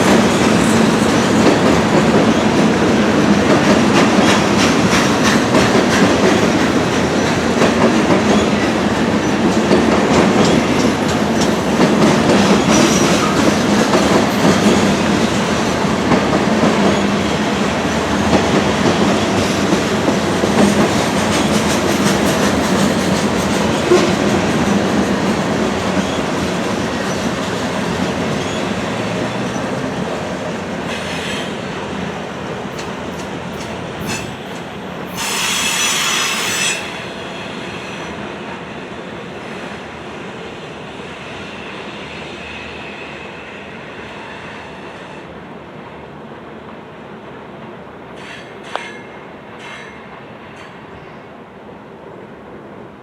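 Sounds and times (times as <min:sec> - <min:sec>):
freight train cars rolling: 0:00.0 - 0:40.0
steel wheels clicking over rail joints: 0:32.7 - 0:36.9.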